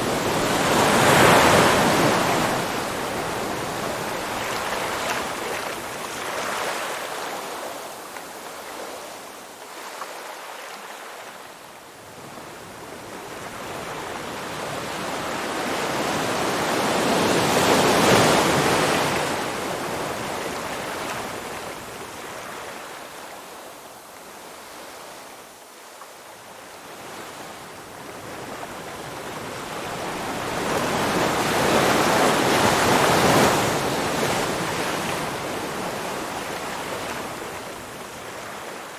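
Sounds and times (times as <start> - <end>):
ocean waves breaking: 0.0 - 7.3.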